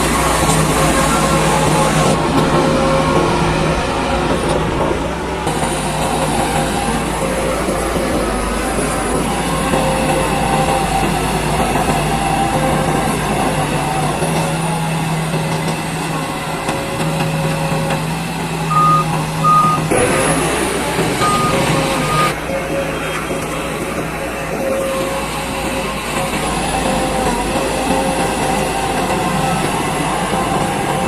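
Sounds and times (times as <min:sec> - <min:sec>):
bulldozer diesel engine running: 0:00.0 - 0:31.0
reversing alarm beeps: 0:18.7 - 0:20.0, 0:21.2 - 0:22.4.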